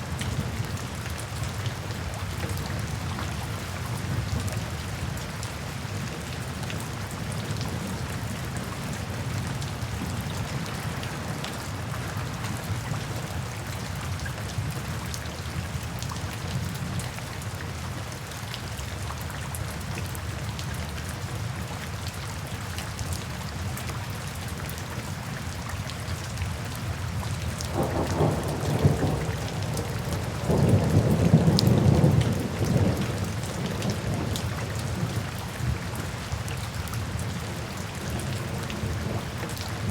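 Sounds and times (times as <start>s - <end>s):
steady rain falling: 0.0s - 39.9s
thunder rumbling: 27.7s - 34.3s.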